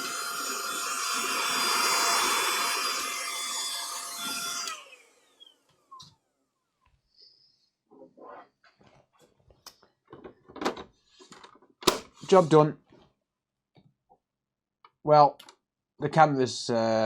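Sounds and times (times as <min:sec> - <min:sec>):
electric fan motor whirring: 0:00.0 - 0:06.0.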